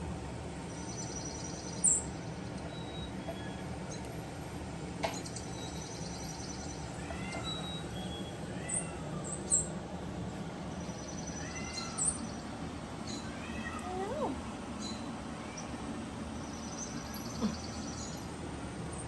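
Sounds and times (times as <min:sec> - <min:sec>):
steady low hum: 0:00.0 - 0:19.0
kittens mewing: 0:17.0 - 0:17.9.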